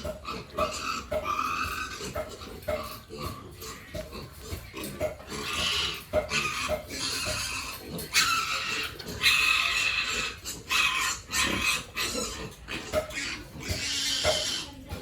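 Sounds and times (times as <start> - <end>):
pigs squealing: 0.0 - 15.0.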